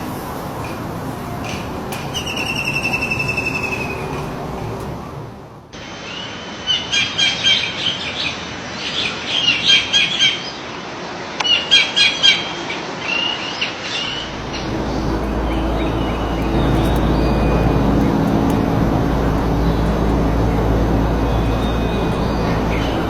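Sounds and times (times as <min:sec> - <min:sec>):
songbird chirping: 0:00.0 - 0:05.4, 0:14.2 - 0:23.0.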